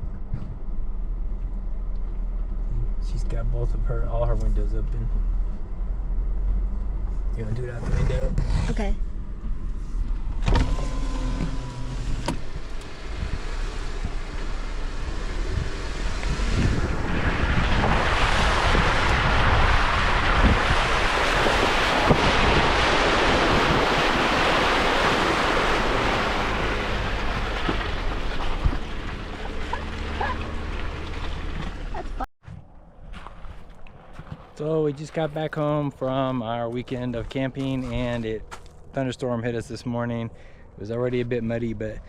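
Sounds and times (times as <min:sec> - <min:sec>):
vehicle engine rumbling: 0:00.0 - 0:42.0
tyres churning through mud: 0:10.4 - 0:32.3.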